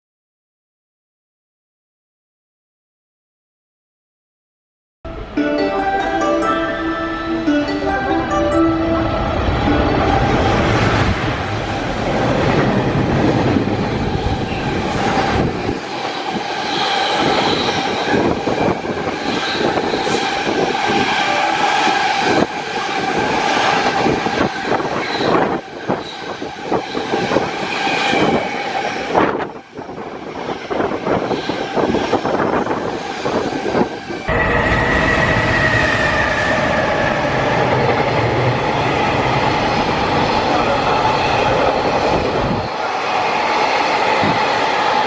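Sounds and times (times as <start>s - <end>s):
ringing tone from wheels and rails: 5.1s - 11.8s, 20.8s - 23.9s, 34.3s - 36.0s.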